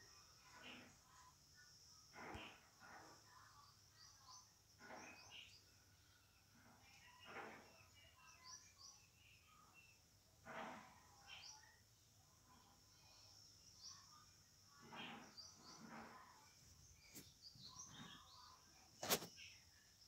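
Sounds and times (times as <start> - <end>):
small birds chirping: 0.0 - 20.0
soft rustles: 19.0 - 19.4.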